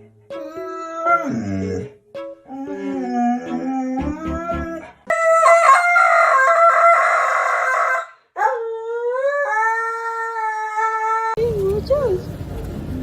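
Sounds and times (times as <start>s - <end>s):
dog howling: 0.4s - 1.9s.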